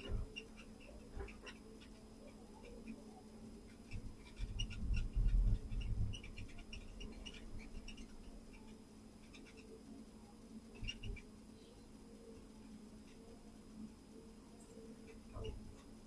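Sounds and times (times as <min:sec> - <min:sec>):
machine low hum: 0:00.0 - 0:16.0.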